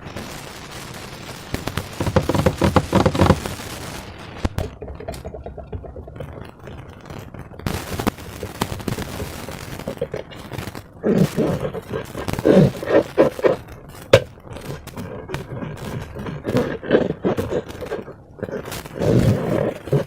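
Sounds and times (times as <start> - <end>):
slime crackling and clicking: 9.7 - 20.0.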